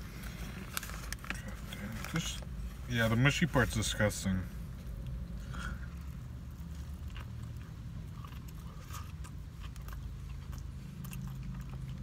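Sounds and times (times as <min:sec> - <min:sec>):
chewing with crunches: 0:04.7 - 0:12.0.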